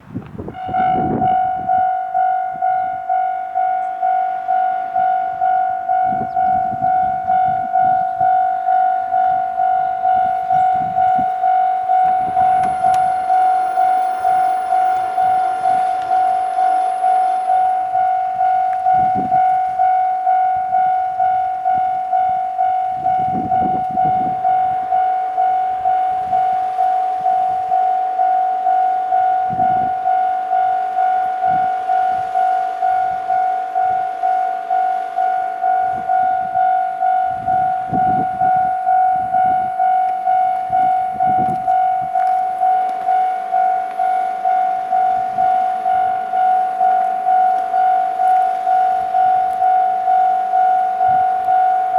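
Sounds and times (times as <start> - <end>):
level crossing warning bell: 0.0 - 51.9
train rumbles and thuds: 5.9 - 25.0, 37.3 - 51.9.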